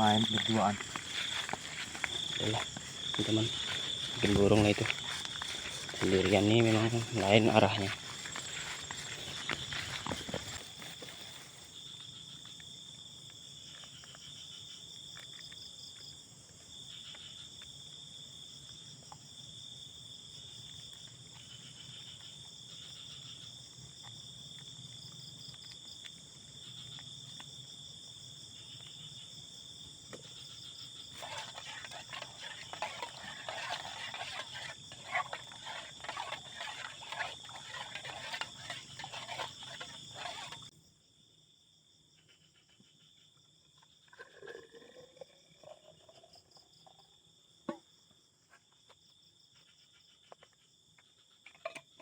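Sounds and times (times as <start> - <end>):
rustling and crackling: 0.0 - 11.8, 31.2 - 40.7
crickets trilling: 0.0 - 52.0.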